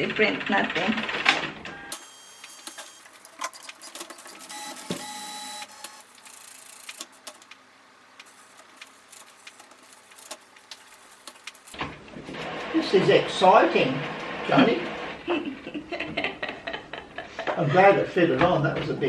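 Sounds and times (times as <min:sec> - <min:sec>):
printer motor whirring: 0:01.5 - 0:15.2.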